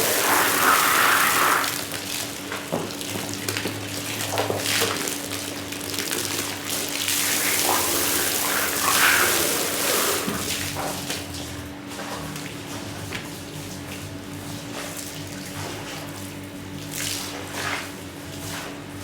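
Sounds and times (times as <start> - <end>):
water running and splashing: 0.0 - 18.8.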